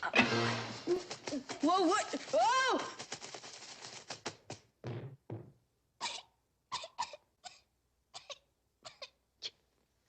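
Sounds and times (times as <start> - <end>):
cartoon character coughing: 6.0 - 9.2.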